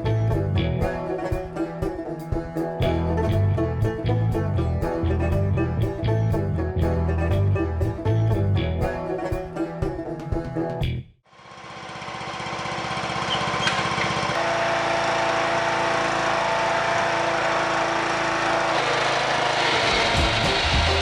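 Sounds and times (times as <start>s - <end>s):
lawn tractor engine running: 11.3s - 21.0s.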